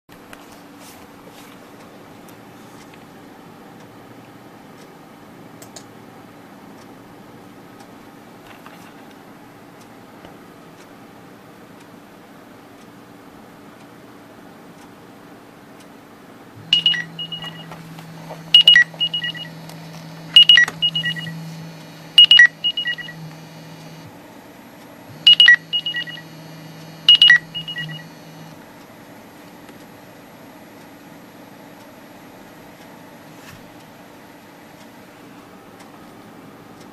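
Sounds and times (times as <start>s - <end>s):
low steady hum: 16.5s - 36.9s
phone ringtone chime: 16.8s - 17.7s, 18.6s - 19.5s, 25.3s - 26.2s.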